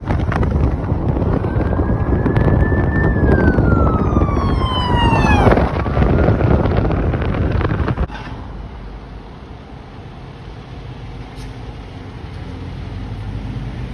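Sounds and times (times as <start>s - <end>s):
vehicle engine and road noise: 0.0s - 13.9s
ambulance siren wailing: 0.1s - 7.3s.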